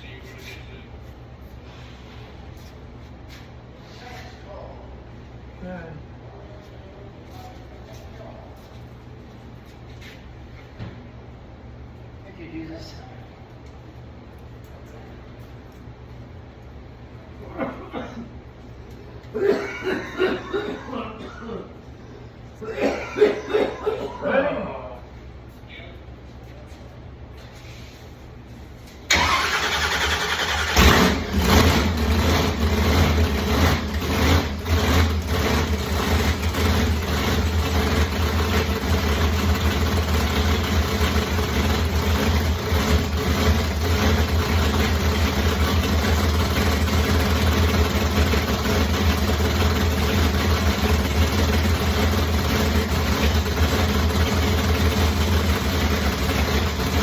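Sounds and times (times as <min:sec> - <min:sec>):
car starter cranking: 0:29.1 - 0:57.0
car engine revving and idling: 0:30.4 - 0:57.0.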